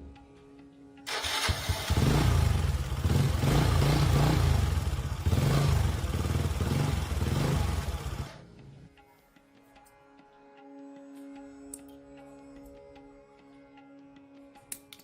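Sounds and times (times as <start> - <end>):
motorcycle engine revving: 1.1 - 8.4.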